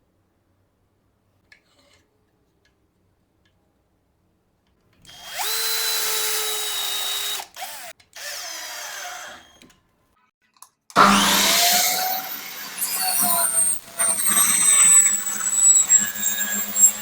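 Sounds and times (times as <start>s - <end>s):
electric drill whining: 5.1s - 9.7s, 11.0s - 17.0s.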